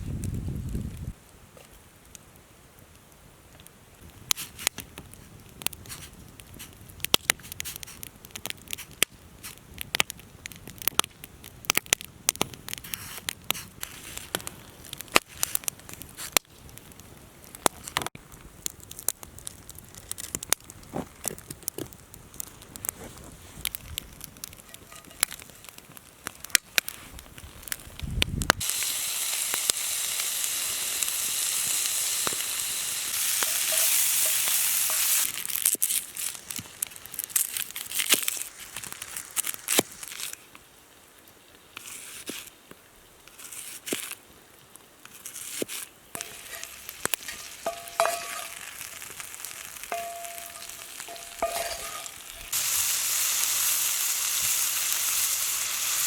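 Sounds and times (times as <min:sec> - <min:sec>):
campfire pops and crackles: 0:00.0 - 0:56.0
food sizzling in skillet: 0:24.6 - 0:25.6, 0:28.6 - 0:35.6, 0:46.2 - 0:56.0.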